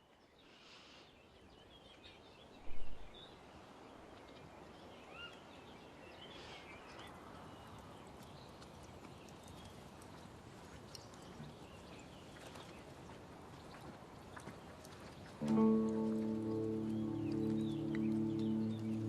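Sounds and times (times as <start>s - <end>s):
bird chirps: 15.4s - 19.0s
low steady hiss: 15.4s - 19.0s.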